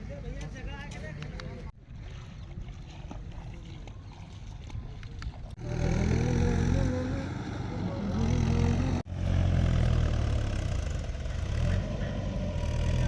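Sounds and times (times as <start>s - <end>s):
tractor diesel engine running: 5.6s - 13.0s.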